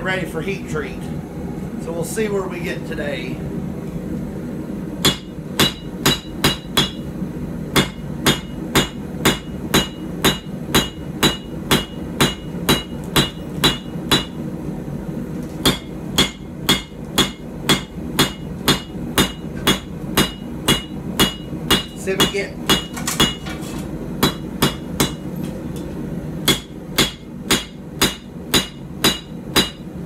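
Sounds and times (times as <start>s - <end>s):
steady low hum: 0.0s - 30.0s
hammer striking steel on anvil: 5.0s - 7.1s, 7.7s - 14.4s, 15.6s - 23.6s, 24.2s - 25.3s, 26.4s - 29.9s.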